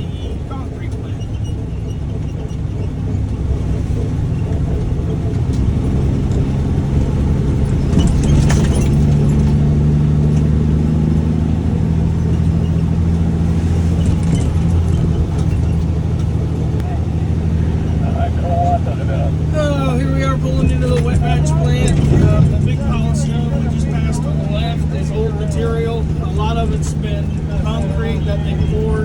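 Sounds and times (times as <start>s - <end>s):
truck engine droning: 0.0s - 29.0s
brief rattle: 0.2s - 10.6s, 12.2s - 17.0s.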